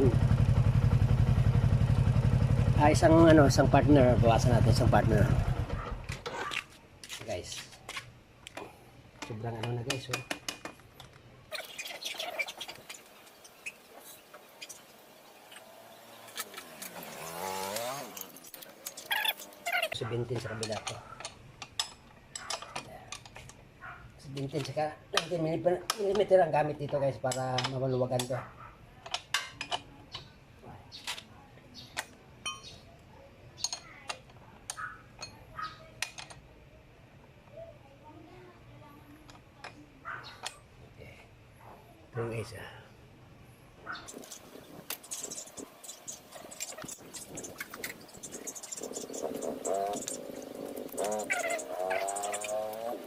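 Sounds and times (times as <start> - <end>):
hand tools clicking and tapping: 6.1 - 11.2, 20.3 - 23.6, 24.4 - 28.4, 44.1 - 53.0.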